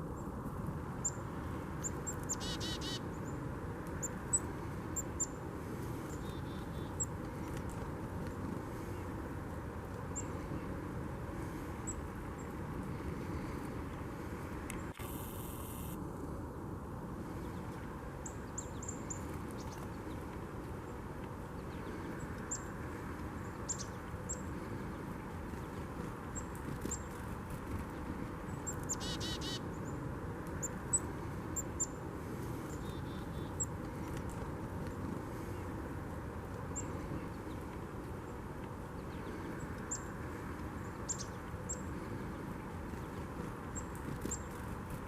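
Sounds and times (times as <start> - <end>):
birds chirping: 1.8 - 3.4, 6.0 - 9.2, 20.9 - 30.0, 32.6 - 35.8
buzzy bird call: 2.3 - 3.0, 28.9 - 29.6.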